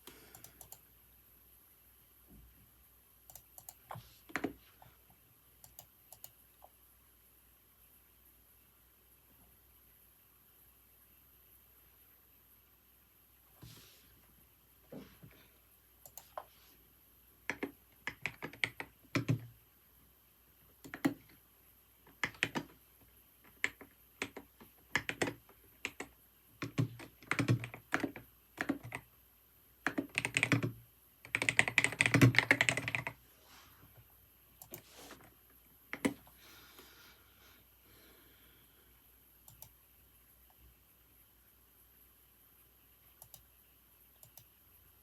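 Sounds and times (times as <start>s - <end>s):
computer keyboard typing: 0.0s - 0.8s, 3.3s - 4.6s, 5.6s - 6.4s, 16.0s - 16.4s, 17.4s - 19.5s, 20.8s - 21.4s, 22.1s - 22.8s, 23.4s - 29.1s, 29.8s - 33.2s, 35.9s - 36.2s, 39.5s - 39.8s, 43.2s - 43.5s.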